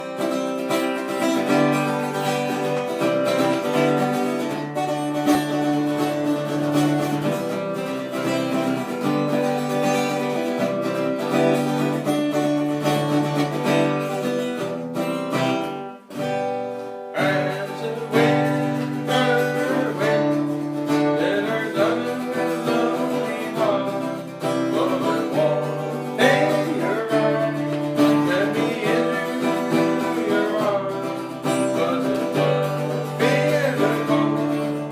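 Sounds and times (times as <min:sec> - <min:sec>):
acoustic guitar music: 0:00.0 - 0:34.9
person singing: 0:17.1 - 0:34.9.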